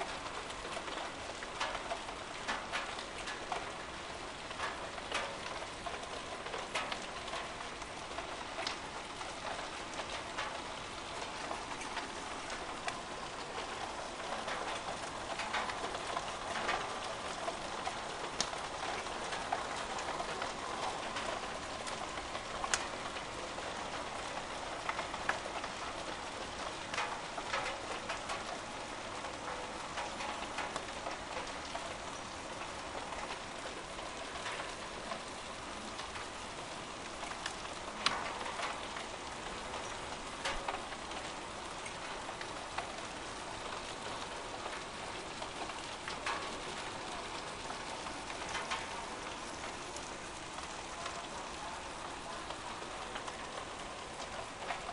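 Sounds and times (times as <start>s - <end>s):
heavy rain hissing: 5.7s - 54.9s
hailstones striking hard surfaces: 11.2s - 28.5s, 29.2s - 54.9s.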